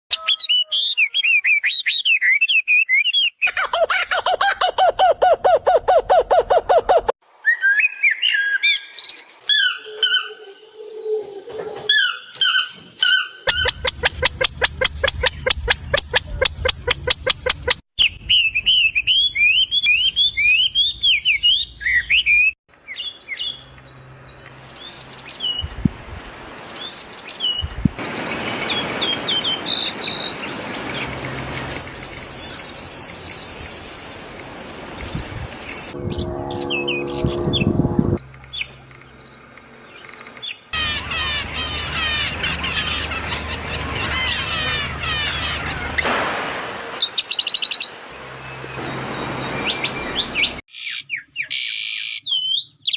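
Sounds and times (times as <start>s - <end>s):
small birds chirping: 12.1s - 36.0s, 38.4s - 46.0s
low steady pitched sound: 35.9s - 40.2s.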